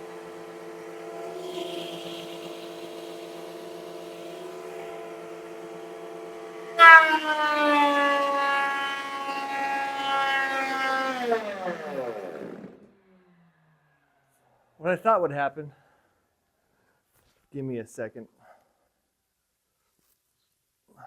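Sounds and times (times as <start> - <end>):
shop vacuum running: 0.0 - 13.0
electric planer running: 0.0 - 13.1
motors spinning down: 0.0 - 13.5.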